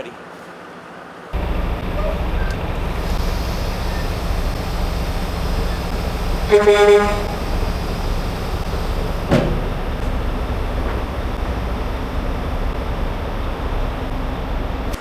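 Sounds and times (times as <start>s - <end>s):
truck engines idling: 1.1s - 15.0s
horn toot: 1.4s - 10.7s.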